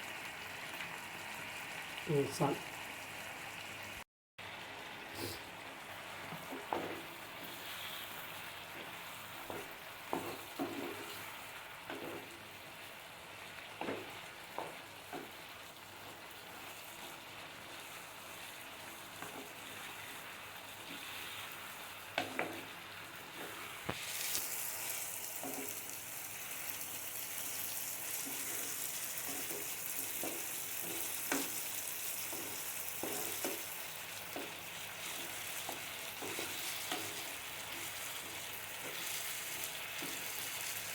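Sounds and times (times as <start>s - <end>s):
food sizzling in a pan: 0.0s - 40.9s
spoon stirring and scraping pan: 6.3s - 12.8s, 13.8s - 26.0s, 27.2s - 40.9s.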